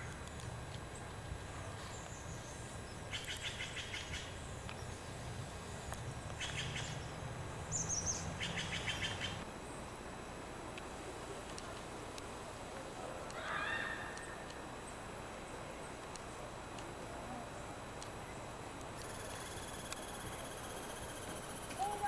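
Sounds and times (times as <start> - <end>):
songbird singing rapid trills: 6.4 - 9.4.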